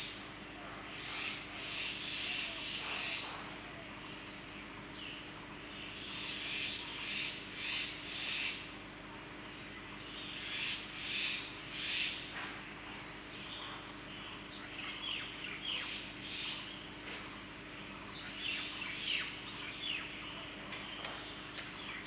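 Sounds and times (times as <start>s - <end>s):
birds chirping: 0.0s - 22.0s
steady low hum: 0.0s - 22.0s.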